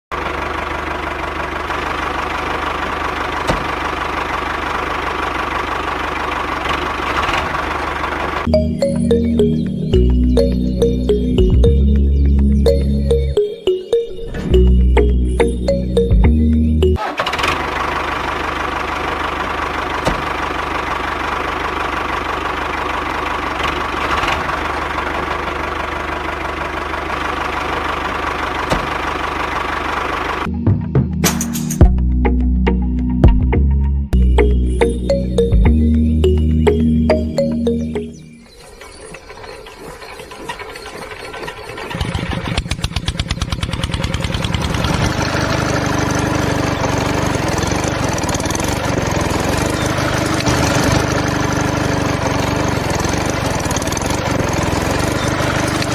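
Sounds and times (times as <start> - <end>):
tractor engine idling: 0.1 - 33.2, 34.2 - 55.9
music: 8.5 - 17.0, 30.5 - 38.5
small motor whirring and rattling: 46.6 - 55.9.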